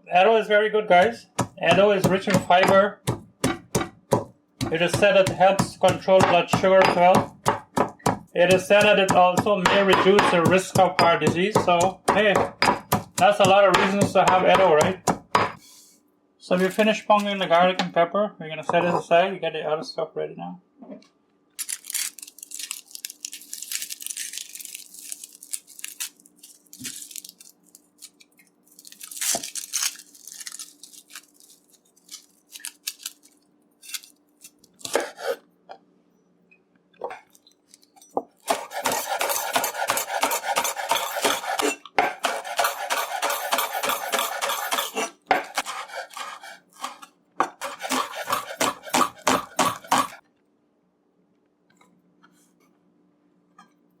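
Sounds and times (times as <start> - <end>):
rapid chopping: 1.0 - 15.6, 38.4 - 50.2
knife and utensils on cutting board: 1.0 - 15.8, 18.7 - 19.1, 33.8 - 35.4, 38.0 - 50.2
rustling: 21.6 - 35.0.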